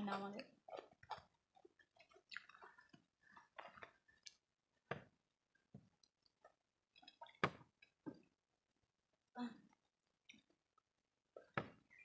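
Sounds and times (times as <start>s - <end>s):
chewing: 0.0s - 4.5s.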